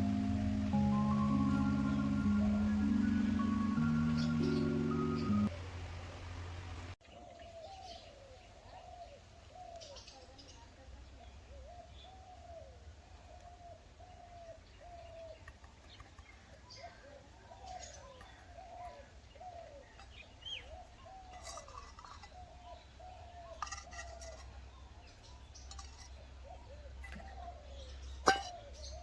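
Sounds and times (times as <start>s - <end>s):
higher bird chirps: 0.0s - 5.5s.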